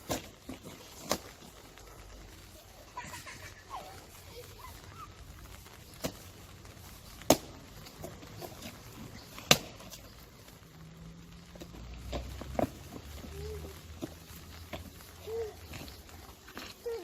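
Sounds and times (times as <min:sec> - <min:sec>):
boots stamping into puddles: 0:00.0 - 0:17.0.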